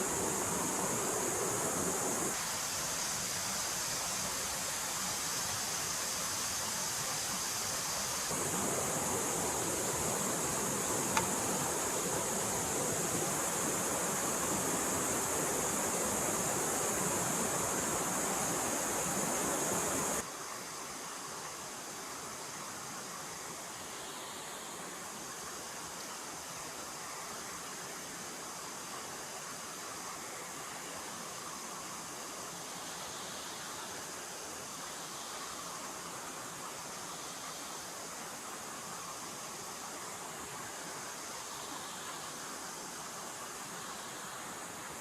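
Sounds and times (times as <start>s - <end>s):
stream water rushing: 0.0s - 45.0s
faint click: 11.1s - 11.4s.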